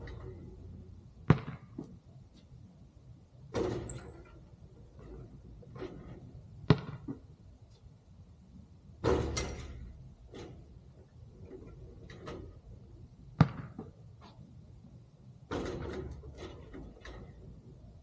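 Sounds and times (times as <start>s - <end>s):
basketball bouncing: 1.2s - 2.1s, 3.5s - 4.4s, 5.0s - 7.3s, 13.3s - 14.0s.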